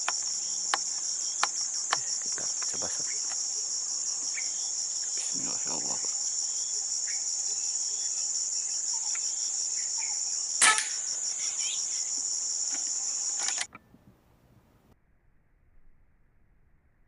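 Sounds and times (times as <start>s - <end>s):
insects shrilling: 0.0s - 13.7s
gunshot: 10.6s - 11.0s.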